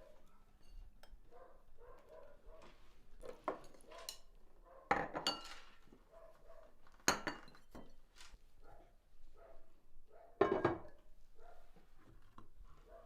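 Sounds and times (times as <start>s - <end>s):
dishes and cutlery clinking: 3.3s - 5.9s, 7.0s - 8.0s, 10.4s - 11.0s.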